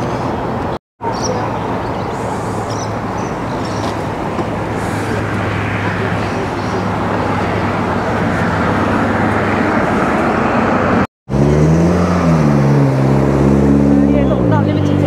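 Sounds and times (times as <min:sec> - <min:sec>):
car engines rumbling: 0:00.0 - 0:15.0
car engine revving: 0:03.9 - 0:15.0.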